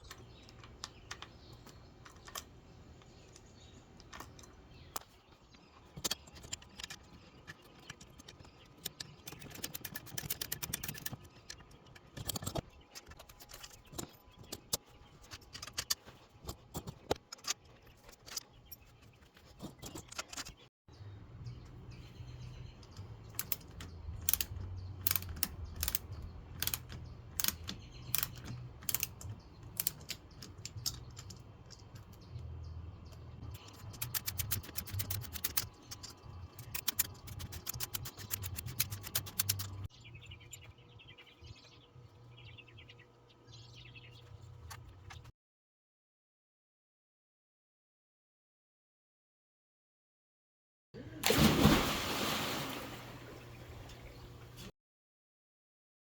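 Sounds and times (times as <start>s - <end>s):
hand ratchet clicking: 23.4s - 31.1s, 33.6s - 39.9s.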